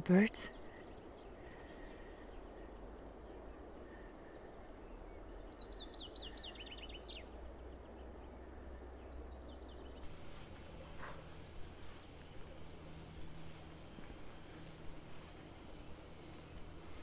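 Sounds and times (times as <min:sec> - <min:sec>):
faint low rumble: 0:00.0 - 0:17.0
faint bird calls: 0:00.5 - 0:17.0.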